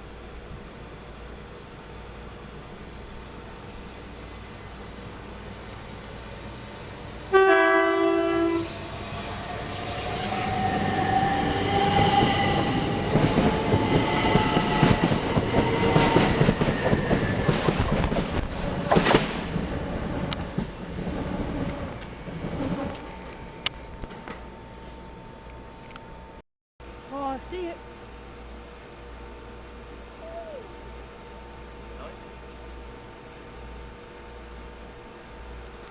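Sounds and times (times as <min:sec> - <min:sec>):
train two-note horn: 0:07.3 - 0:09.1
train wheels clattering on rails: 0:08.8 - 0:24.5.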